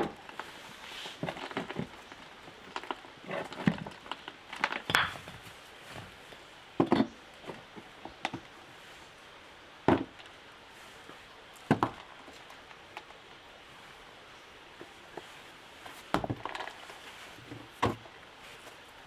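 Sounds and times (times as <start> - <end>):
wood chopping knocks: 4.9 - 5.4.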